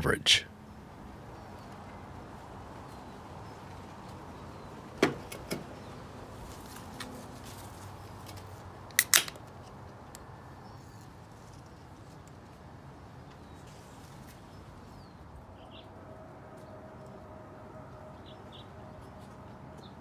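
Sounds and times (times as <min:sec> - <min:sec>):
beer can pull tab snapping: 0:08.9 - 0:09.4.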